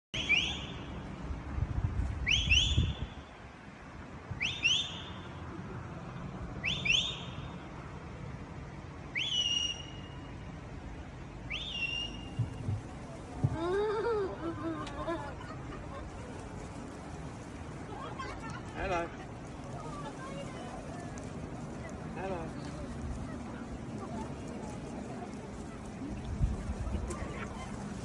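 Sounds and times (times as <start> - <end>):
short rising whistles: 4.4 - 5.3, 9.1 - 10.4, 11.5 - 12.6.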